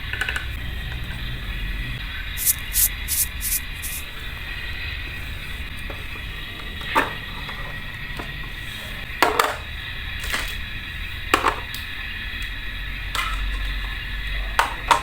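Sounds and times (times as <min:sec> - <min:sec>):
small utensils knocking and clicking: 0:00.0 - 0:01.0
background hiss: 0:02.4 - 0:04.1.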